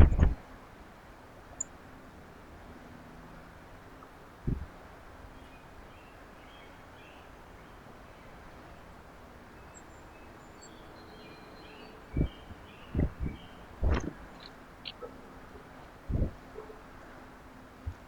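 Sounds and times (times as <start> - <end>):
low thump: 0.0 - 0.4
outdoor background noise: 0.0 - 18.0
faint bird chirps: 9.5 - 15.1.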